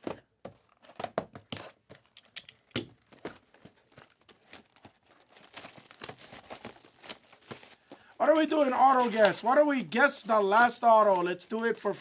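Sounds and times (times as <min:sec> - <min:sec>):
plastic wrapping crinkling and tearing: 0:03.4 - 0:09.4.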